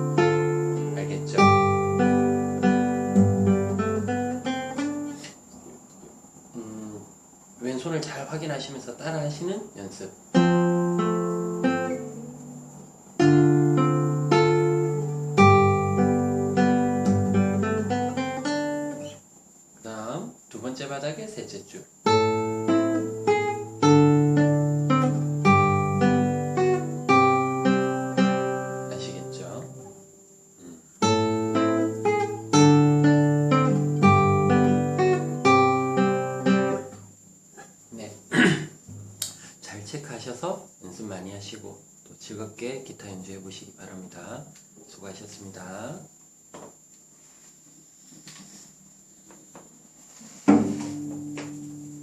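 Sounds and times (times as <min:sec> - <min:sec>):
classical guitar fingerstyle: 0:00.0 - 0:05.4, 0:10.3 - 0:19.2, 0:22.0 - 0:30.0, 0:30.6 - 0:37.1, 0:50.5 - 0:52.0.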